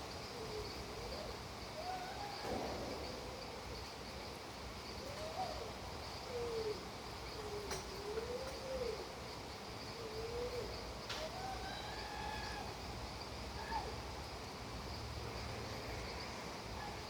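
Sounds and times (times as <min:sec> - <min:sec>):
wavering whistling animal call: 0:11.2 - 0:12.8.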